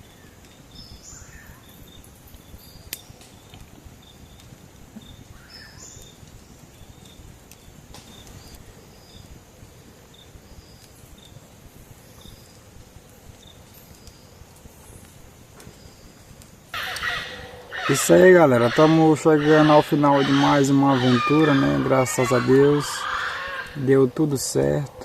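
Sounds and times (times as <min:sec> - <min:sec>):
low steady hiss: 0:00.0 - 0:25.0
faint clicks: 0:02.3 - 0:05.2.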